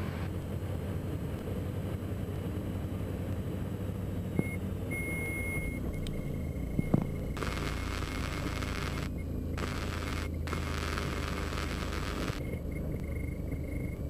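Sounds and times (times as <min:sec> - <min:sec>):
aircraft engines rumbling: 0:00.0 - 0:14.0
electronic warning tone beeps: 0:04.4 - 0:14.0.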